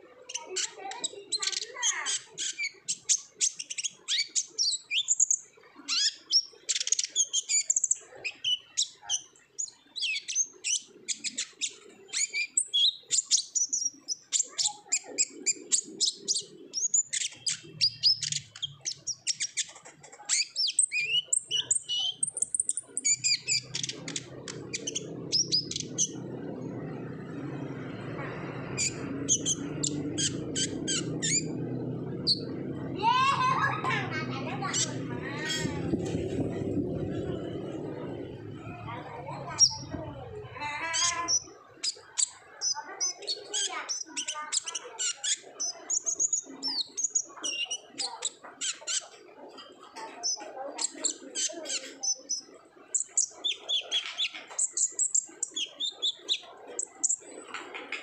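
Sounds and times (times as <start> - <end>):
bird chirping rapidly: 0.3 - 49.2, 50.2 - 57.4
low hum: 23.3 - 40.9.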